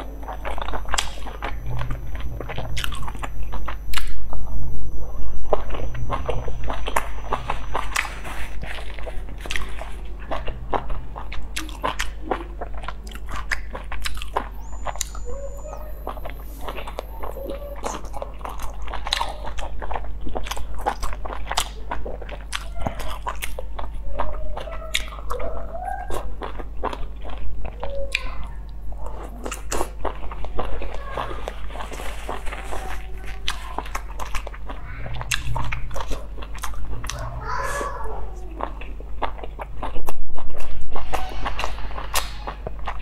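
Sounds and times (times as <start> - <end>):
low hum: 0.0 - 24.0, 28.8 - 43.0
person chewing food: 0.0 - 43.0.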